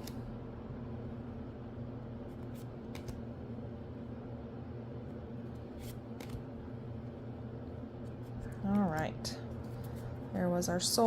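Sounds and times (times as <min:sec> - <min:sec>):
cards clicking: 0:02.9 - 0:03.2, 0:06.2 - 0:06.4.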